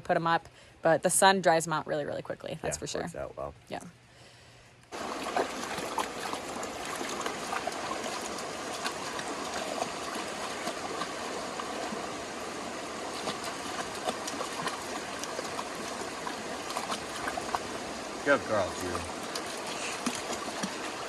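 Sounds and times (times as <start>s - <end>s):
creek water running: 4.9s - 21.0s.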